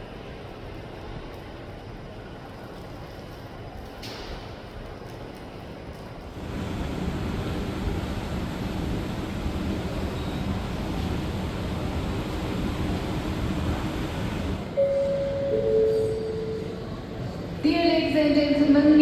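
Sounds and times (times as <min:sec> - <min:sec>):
steady rushing noise: 0:06.3 - 0:14.8
two-tone public address chime: 0:14.8 - 0:17.0.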